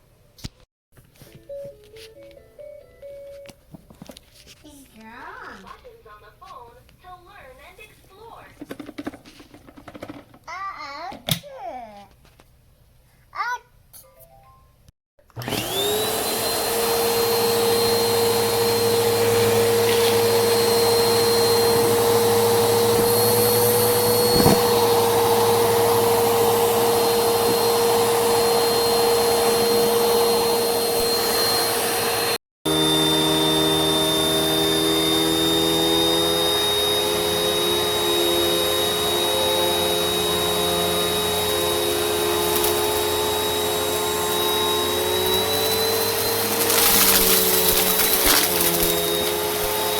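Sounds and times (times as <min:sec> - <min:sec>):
vacuum cleaner motor whine: 0:15.2 - 0:49.9.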